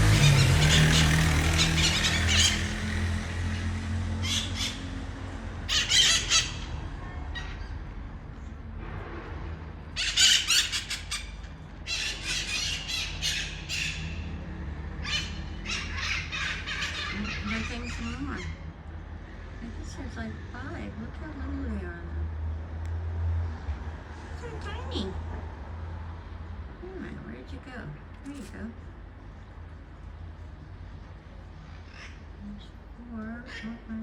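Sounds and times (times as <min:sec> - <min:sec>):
parrots squawking: 0:00.0 - 0:08.2, 0:09.9 - 0:19.4, 0:31.6 - 0:32.4, 0:33.4 - 0:34.0.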